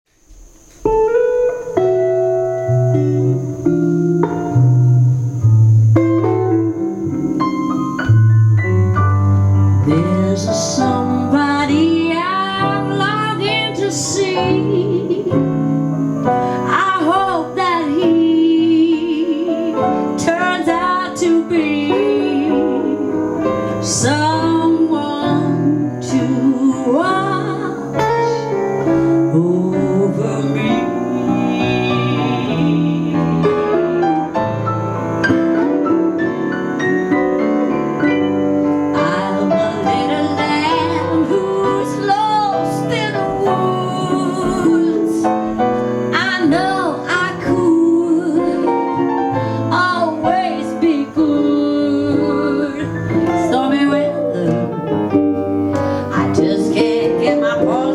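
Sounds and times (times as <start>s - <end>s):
piano accompaniment: 0.1s - 57.9s
woman singing jazz-blues: 9.7s - 34.3s, 35.4s - 57.9s.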